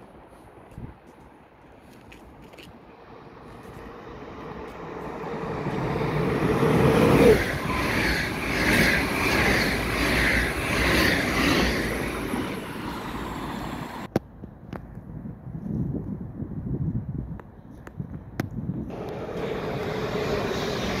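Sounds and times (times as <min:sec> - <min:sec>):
electric train hum: 0:02.8 - 0:14.1, 0:18.9 - 0:21.0
train rushing rumble: 0:02.9 - 0:14.1, 0:18.9 - 0:21.0
train wheels clattering: 0:04.6 - 0:14.1.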